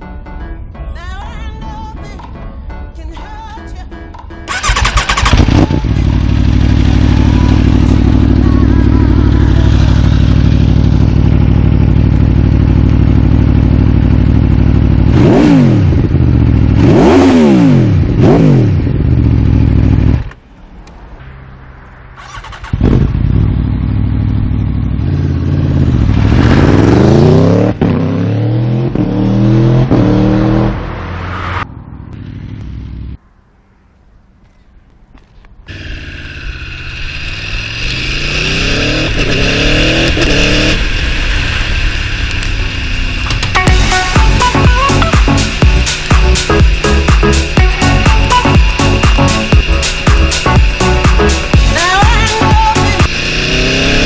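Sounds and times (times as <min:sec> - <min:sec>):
motorcycle engine revving: 0:04.5 - 0:20.4, 0:22.0 - 0:33.2, 0:35.7 - 0:54.0.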